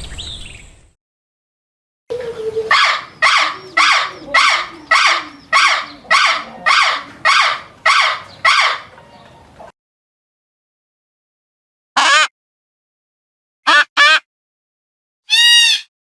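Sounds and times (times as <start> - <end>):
harsh animal call: 2.1 - 9.2, 15.3 - 15.9
low gliding call: 2.1 - 9.7.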